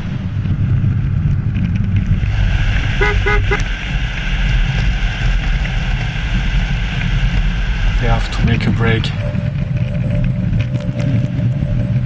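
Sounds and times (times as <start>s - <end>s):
wheels rolling on asphalt: 0.0s - 12.0s
wind rushing: 0.0s - 12.0s
short horn toots: 3.0s - 3.7s.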